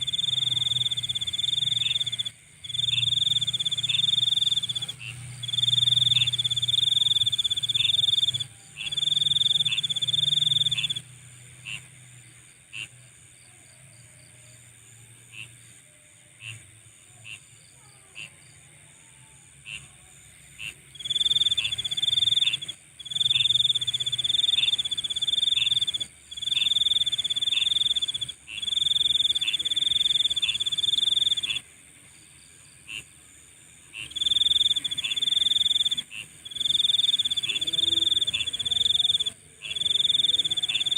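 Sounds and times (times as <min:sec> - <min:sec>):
insect pulsing trill: 0:00.0 - 0:11.9, 0:20.6 - 0:40.9
insect continuous high buzz: 0:00.0 - 0:40.9.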